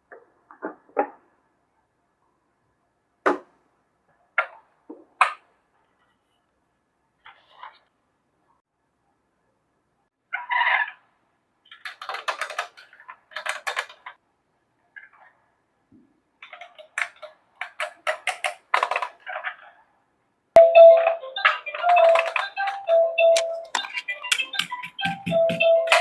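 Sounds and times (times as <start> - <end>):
plastic toy pieces clicking: 11.7 - 14.2, 16.4 - 19.3, 21.4 - 26.0.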